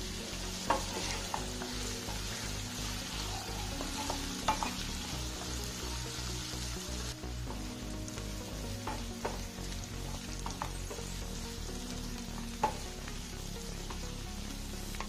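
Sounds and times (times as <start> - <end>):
onions sizzling in oil: 0.0 - 15.0
spatula scraping a pan: 0.5 - 5.1.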